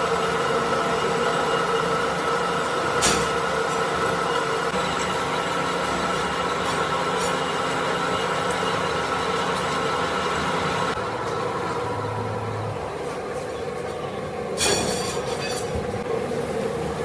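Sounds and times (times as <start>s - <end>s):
metalworking machine humming: 0.0s - 17.0s.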